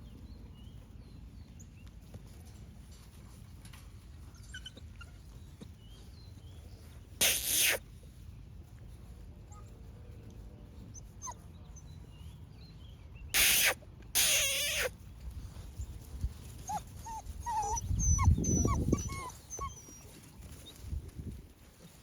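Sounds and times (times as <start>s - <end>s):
puppies whimpering and whining: 4.3s - 5.4s, 7.2s - 7.8s, 10.9s - 12.0s, 13.4s - 14.9s, 16.6s - 20.9s.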